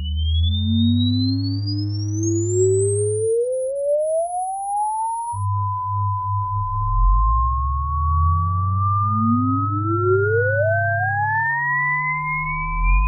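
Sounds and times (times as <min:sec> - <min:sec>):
tone sweeping upward: 0:00.0 - 0:03.5, 0:06.0 - 0:13.0
gliding sine-wave test tone: 0:00.0 - 0:13.0
steady low bass tones: 0:05.4 - 0:13.0
very high tone: 0:08.0 - 0:13.0.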